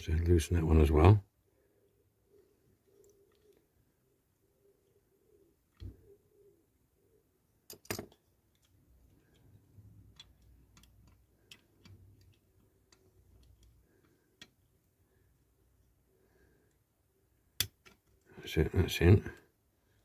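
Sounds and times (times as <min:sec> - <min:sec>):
faint rumble of handling: 0:00.8 - 0:20.0
metal parts of model car clicking: 0:07.6 - 0:14.9, 0:17.6 - 0:18.2.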